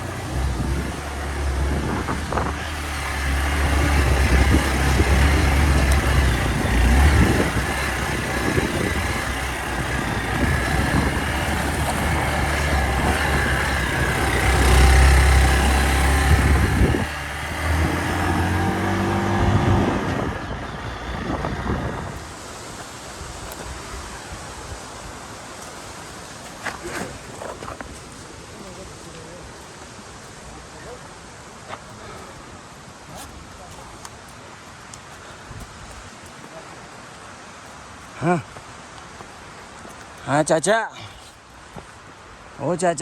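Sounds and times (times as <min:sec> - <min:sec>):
motorcycle engine revving: 0:00.0 - 0:22.5
wind noise on microphone: 0:00.0 - 0:25.2.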